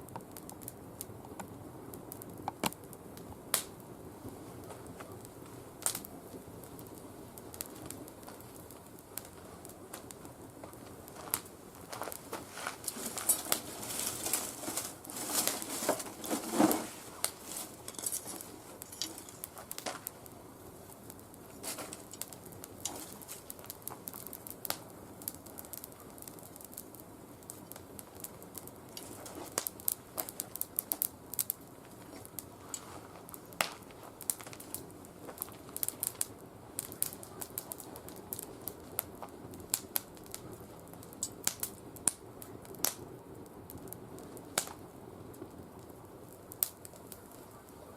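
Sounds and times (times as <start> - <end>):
twigs crackling in a fire: 0.0 - 47.9.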